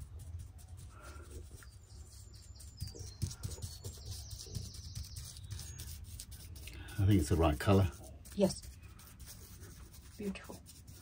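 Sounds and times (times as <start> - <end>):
faint high bird chirps: 1.5 - 6.0
brush knocking against concrete: 2.5 - 8.7.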